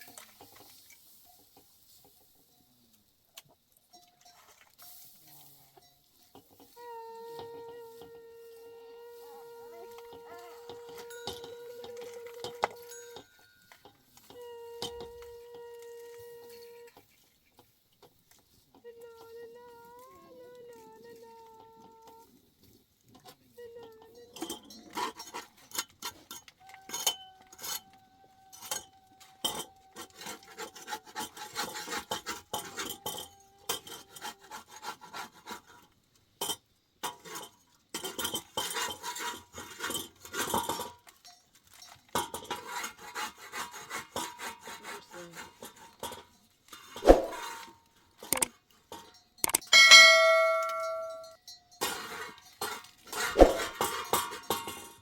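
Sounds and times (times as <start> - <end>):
metal pots clinking and scraping: 0.0 - 3.0, 3.6 - 8.2, 9.2 - 19.3, 21.9 - 55.0
metal vessel ringing: 49.4 - 51.7.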